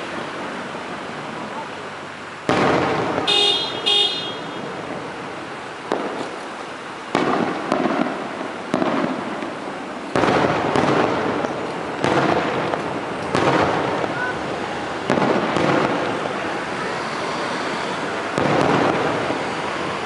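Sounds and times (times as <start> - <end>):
fireworks booming: 0.0 - 20.0.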